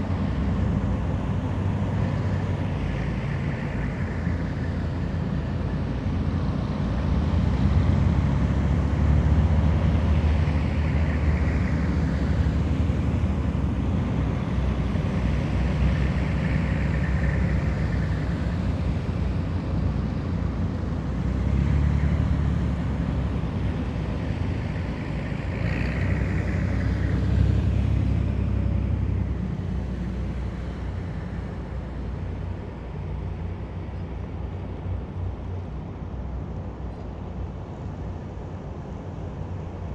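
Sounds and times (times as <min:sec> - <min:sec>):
heavy military vehicles driving past: 0:00.0 - 0:39.9.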